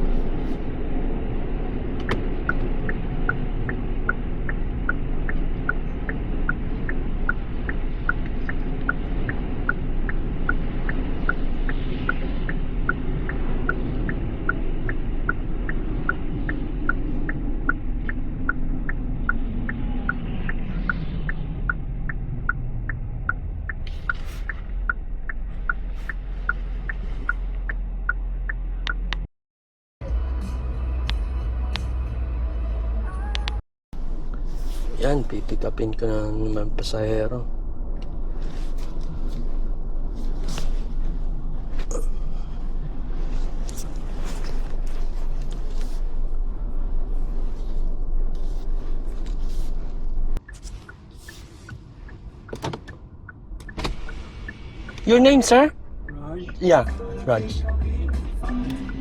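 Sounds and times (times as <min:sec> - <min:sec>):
car driving rumble: 0:00.0 - 0:29.3, 0:30.0 - 0:59.0
turn signal ticking: 0:01.1 - 0:29.3, 0:50.3 - 0:59.0.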